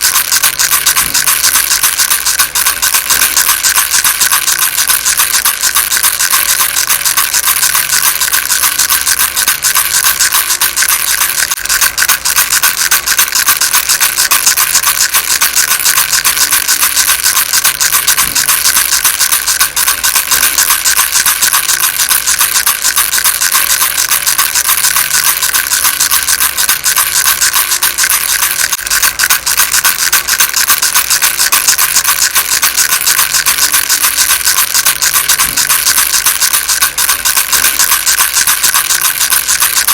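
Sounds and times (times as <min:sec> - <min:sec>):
baby rattle shaking: 0:00.0 - 0:39.9.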